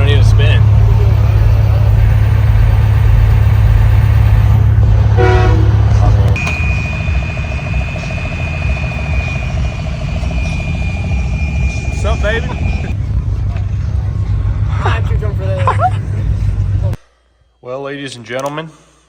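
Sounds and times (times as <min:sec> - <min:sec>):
steady horn-like tone: 0:00.0 - 0:13.0
deep vehicle rumble: 0:00.0 - 0:17.0
pulsing low note: 0:00.0 - 0:17.0.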